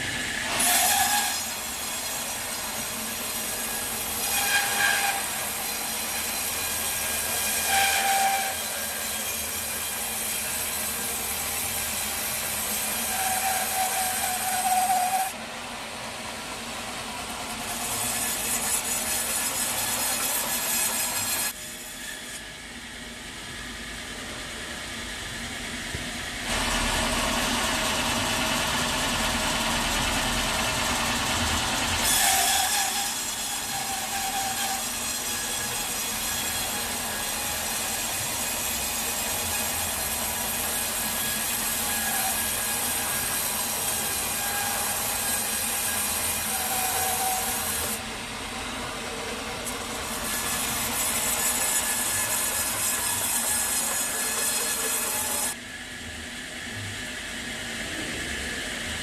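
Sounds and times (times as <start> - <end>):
sawmill saw cutting log: 0.0 - 22.8, 26.4 - 55.6
saw squeals: 0.2 - 15.4, 17.5 - 22.6, 30.9 - 48.0, 49.4 - 55.6.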